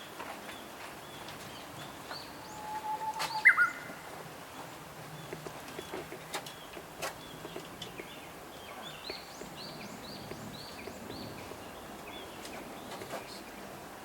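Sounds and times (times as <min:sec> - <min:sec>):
bush warbler singing: 0:00.5 - 0:02.6, 0:03.3 - 0:03.9, 0:04.5 - 0:13.8
sharp clicks: 0:05.2 - 0:08.2, 0:09.0 - 0:13.4.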